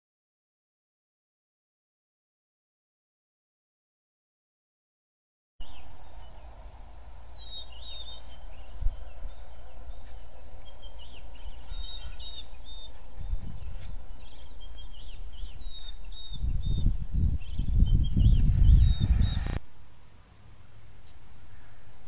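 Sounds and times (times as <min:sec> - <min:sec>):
low rumbling: 0:05.6 - 0:19.7
small birds chirping: 0:05.6 - 0:20.0
low outdoor background noise: 0:05.6 - 0:22.0.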